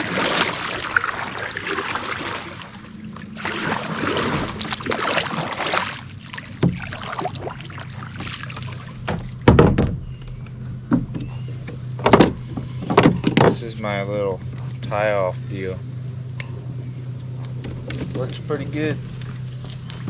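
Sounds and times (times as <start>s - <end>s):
paddle swishing water: 0.0s - 13.3s, 17.7s - 20.0s
hollow knocks on kayak hull: 6.6s - 7.0s, 9.0s - 13.6s.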